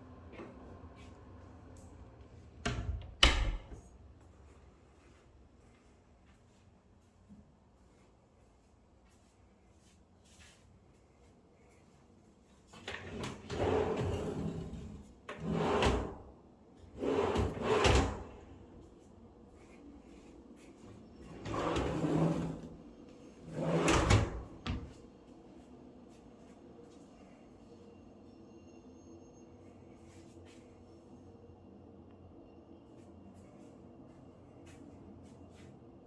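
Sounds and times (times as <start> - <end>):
drawers and cabinet doors closing: 2.7 - 3.8, 12.8 - 16.2, 17.0 - 18.4, 21.3 - 22.8, 23.5 - 25.0.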